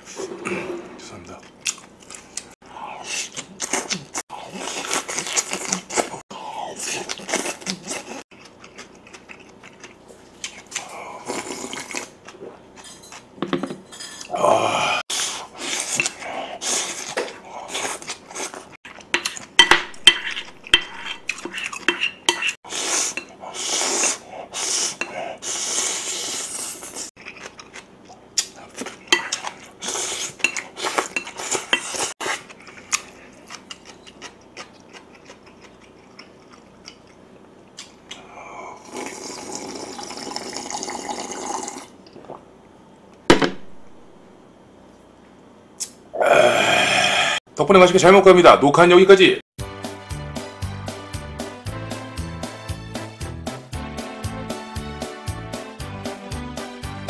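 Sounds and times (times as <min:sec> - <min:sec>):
chewing: 0:06.8 - 0:12.6, 0:26.8 - 0:38.3
utensils scraping ceramic plate: 0:20.0 - 0:23.3.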